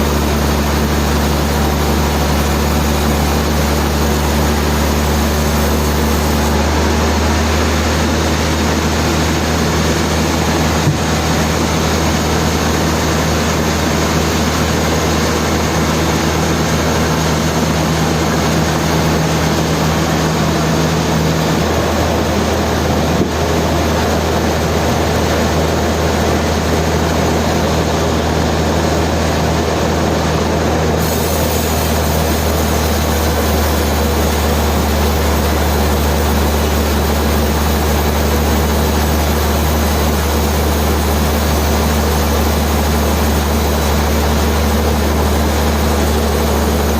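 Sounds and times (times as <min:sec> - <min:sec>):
sawmill machinery running: 0:00.0 - 0:46.9.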